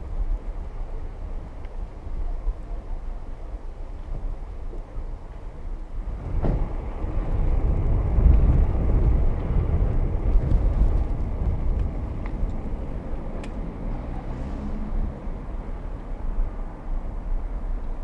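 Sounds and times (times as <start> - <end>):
vehicle passing close by: 6.6 - 16.3.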